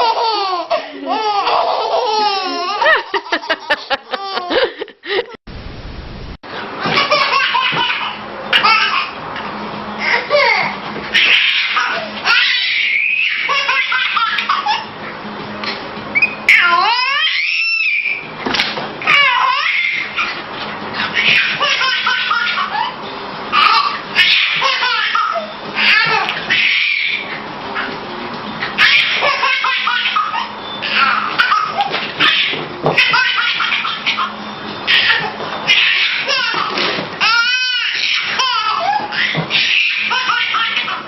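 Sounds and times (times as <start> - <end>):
person laughing: 2.4 - 5.4.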